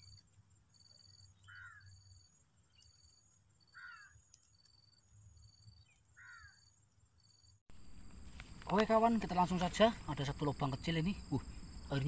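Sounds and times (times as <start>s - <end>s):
faint bird calls: 1.2s - 2.1s, 3.7s - 4.3s, 5.8s - 6.7s
harsh caw: 1.5s - 1.9s, 3.8s - 4.2s, 6.2s - 6.6s
steady high hiss: 7.7s - 12.0s.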